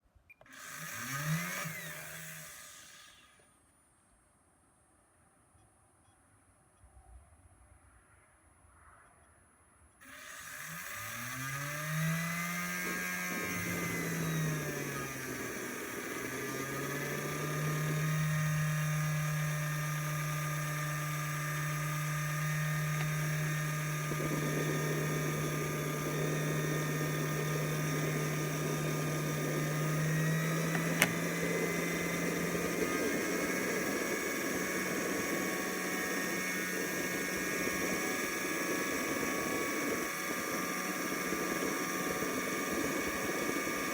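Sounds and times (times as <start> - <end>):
turbine engine whine: 10.0 - 43.9
sharp click: 30.7 - 31.2.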